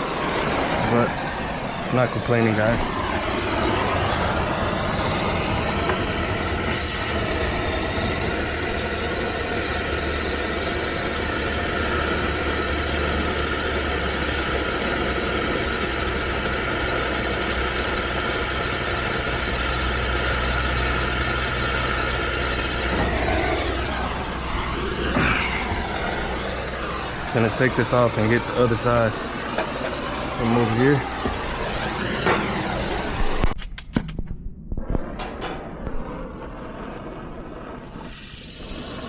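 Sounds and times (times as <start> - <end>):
torch flame roaring hiss: 0.0 - 33.6, 34.7 - 39.0.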